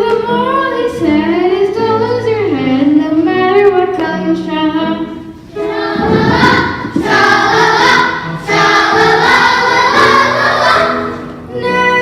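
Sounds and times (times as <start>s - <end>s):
children's choir singing: 5.5s - 12.0s.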